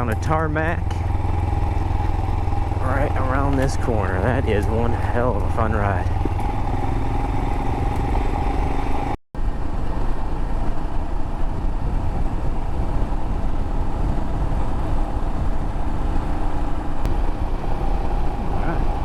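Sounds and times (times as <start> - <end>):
motorcycle engine running: 0.0 - 9.2
wind rush over microphone: 6.0 - 19.0.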